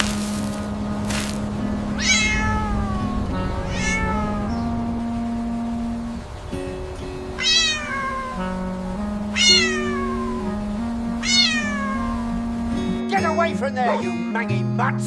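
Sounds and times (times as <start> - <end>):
soft background music: 0.0 - 15.0
cat meowing: 1.9 - 5.2, 7.4 - 12.4.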